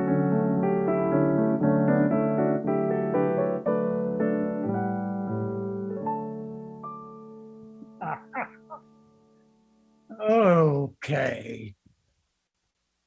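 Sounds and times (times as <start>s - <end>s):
solo piano chords: 0.0s - 10.1s.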